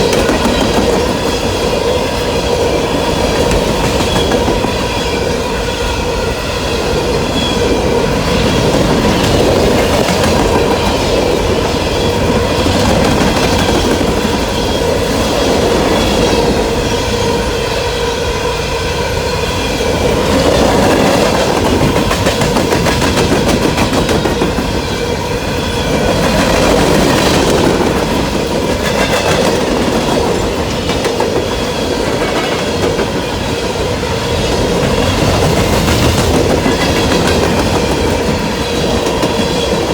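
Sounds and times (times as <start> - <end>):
wheels clacking over rail joints: 0.0 - 5.4
freight train rumbling past: 0.0 - 39.9
ringing whine of wheels: 0.0 - 39.9.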